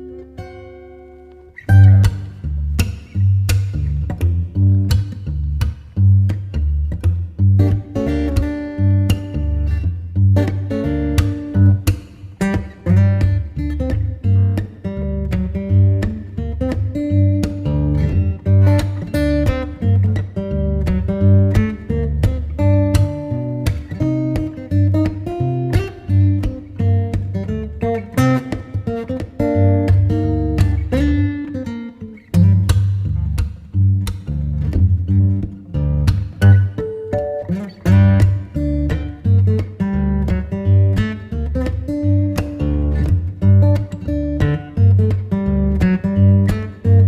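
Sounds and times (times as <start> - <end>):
acoustic guitar music: 0.0 - 47.0.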